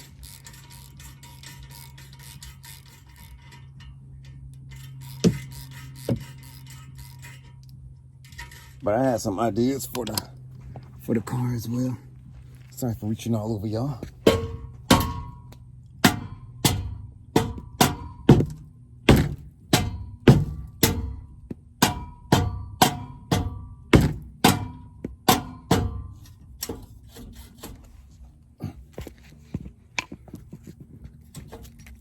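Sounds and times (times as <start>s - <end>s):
hammer striking metal exhaust tip: 13.9s - 28.0s.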